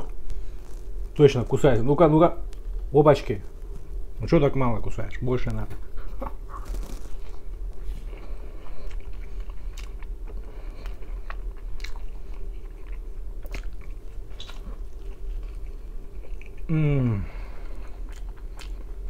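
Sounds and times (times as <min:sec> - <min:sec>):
man chewing pizza: 0:05.8 - 0:19.0
crisp crust clicks: 0:06.6 - 0:07.4.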